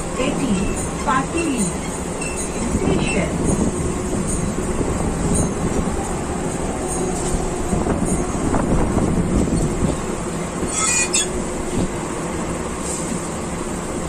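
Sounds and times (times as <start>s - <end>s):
train rumble and clatter: 0.0s - 14.0s
high metallic squeal: 10.6s - 11.4s.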